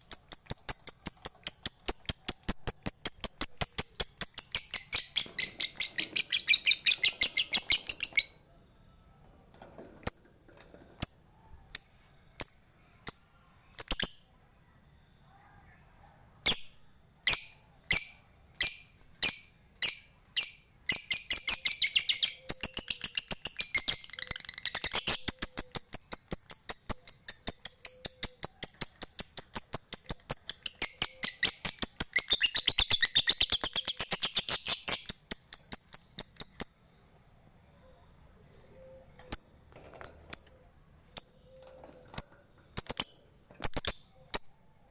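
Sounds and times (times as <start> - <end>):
lovebird chattering song: 0.0 - 8.4, 17.3 - 36.8.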